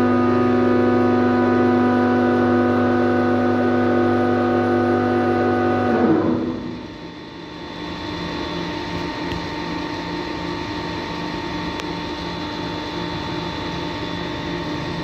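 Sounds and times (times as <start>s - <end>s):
low pulsing throb: 0.0s - 7.8s
machinery humming with tones: 0.0s - 15.0s.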